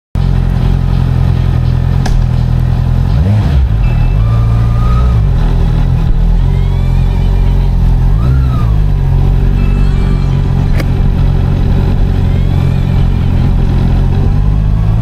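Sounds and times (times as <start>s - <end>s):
motorcycle engine running: 0.2s - 15.0s
sharp click: 2.0s - 2.6s, 10.7s - 11.0s.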